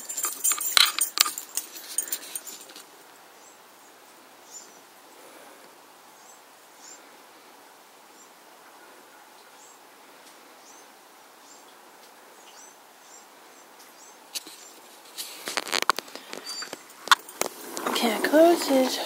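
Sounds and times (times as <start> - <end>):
knocks and rattles: 0.0 - 2.8
faint hiss: 0.0 - 19.0
small birds chirping: 3.3 - 5.4, 6.1 - 7.2, 9.4 - 19.0.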